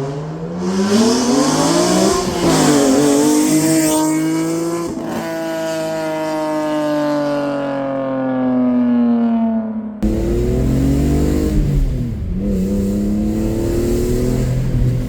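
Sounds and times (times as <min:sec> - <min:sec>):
car engine accelerating hard: 0:10.0 - 0:15.0.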